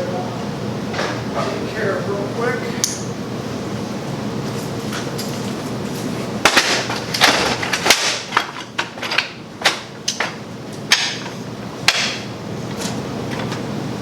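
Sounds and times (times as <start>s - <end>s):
knocks and taps from repair work: 6.4s - 13.6s.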